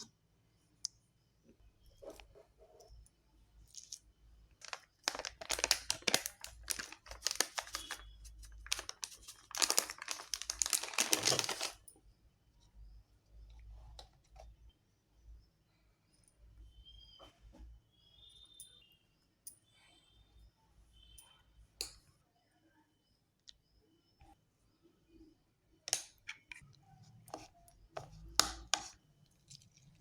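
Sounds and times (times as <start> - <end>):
packaging crinkling and tearing: 4.6 - 11.8.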